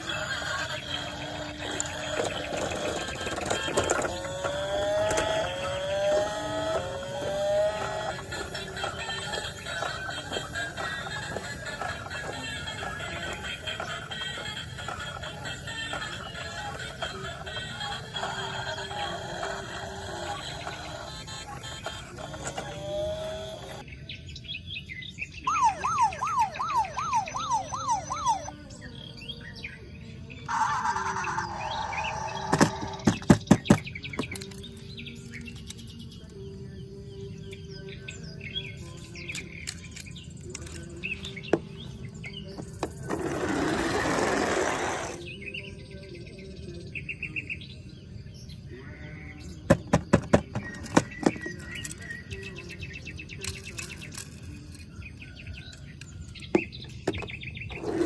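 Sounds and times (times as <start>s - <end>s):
high electronic bird-like chirps: 0.0s - 23.8s, 25.4s - 28.6s, 30.5s - 33.1s
toy car engine whine revving: 0.0s - 23.8s, 25.5s - 28.5s, 30.4s - 33.4s, 42.6s - 45.3s, 49.8s - 52.5s, 53.4s - 54.8s, 57.7s - 58.0s
electronic siren-like warble: 0.4s - 10.9s, 25.5s - 28.5s
plastic clicks and rattles: 39.3s - 40.9s.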